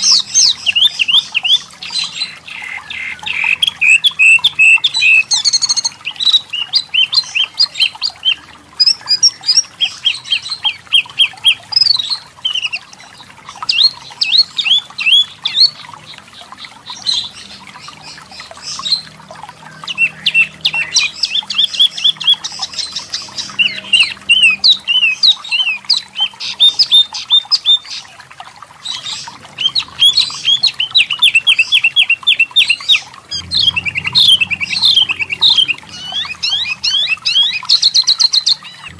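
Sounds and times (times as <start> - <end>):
bird chirping rapidly: 0.0 - 12.8, 19.7 - 28.0, 28.8 - 38.9.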